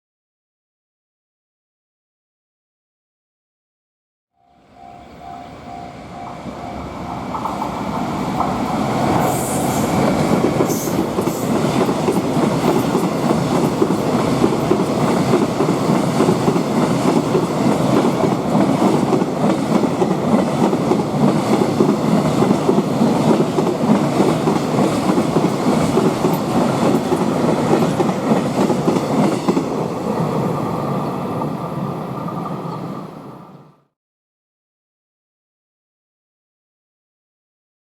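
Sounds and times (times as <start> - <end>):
train wheels clattering over rails: 7.1 - 30.4.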